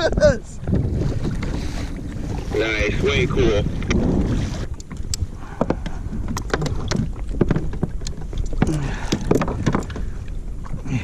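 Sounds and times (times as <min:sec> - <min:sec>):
wind rumble on microphone: 0:00.0 - 0:11.0
knocks and taps on kayak: 0:03.7 - 0:10.8.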